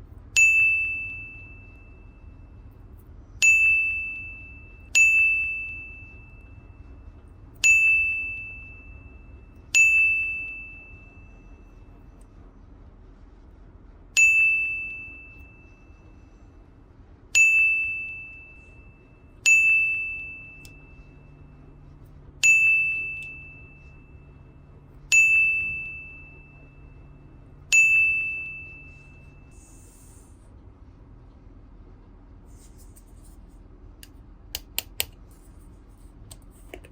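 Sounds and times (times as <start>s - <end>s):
bell-like ding: 0.4s - 2.4s, 25.1s - 29.5s.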